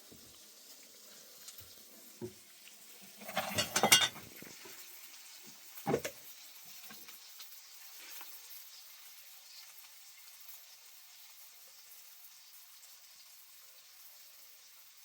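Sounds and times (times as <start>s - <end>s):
objects clattering: 3.1s - 4.7s.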